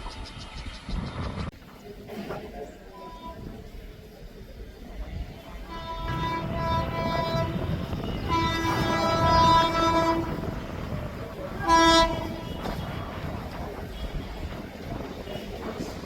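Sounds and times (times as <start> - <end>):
train rumbling: 0.0 - 16.0
train horn blasts: 3.0 - 3.7, 5.5 - 14.4.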